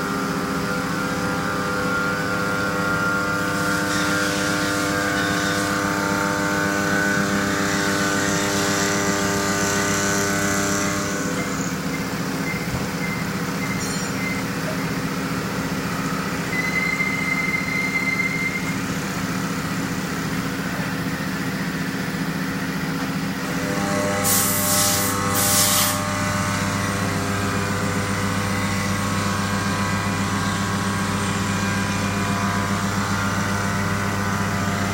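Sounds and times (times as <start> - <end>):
machine hum: 0.0 - 34.9.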